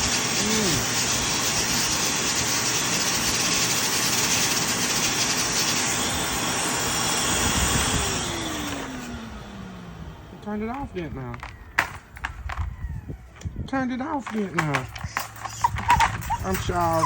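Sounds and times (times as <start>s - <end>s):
blow dryer blowing: 0.0s - 17.0s
motor whine spinning down: 4.3s - 10.4s, 11.4s - 13.6s.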